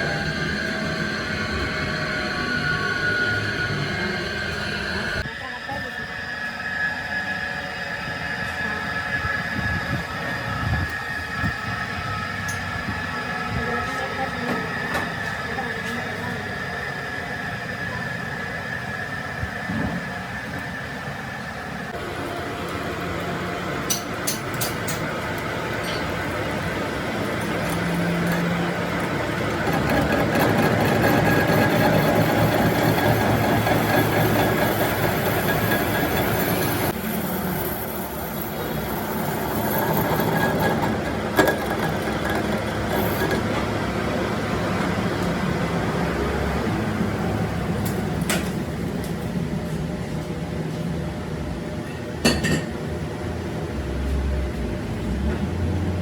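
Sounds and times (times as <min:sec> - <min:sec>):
machine rattling and humming: 0:22.0 - 0:46.0.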